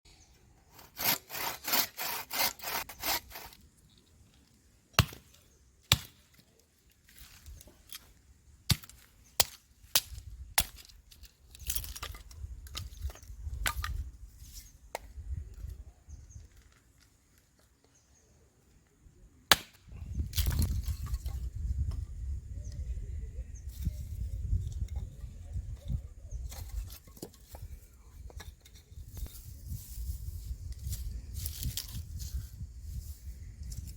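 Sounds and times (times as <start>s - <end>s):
rasping strokes on wood: 0.7s - 3.6s.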